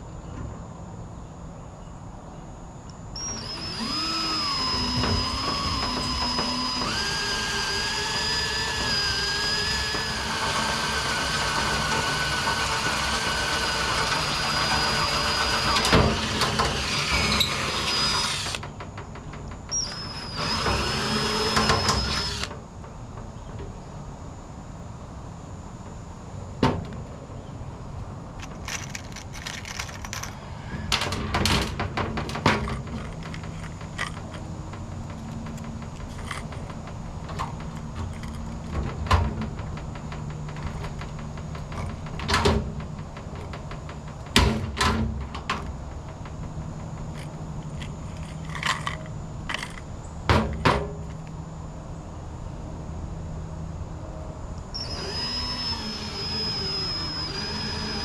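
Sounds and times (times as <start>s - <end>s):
steady low hum: 0.0s - 58.0s
metal parts clanking: 28.4s - 34.5s, 35.9s - 38.8s, 47.0s - 49.9s.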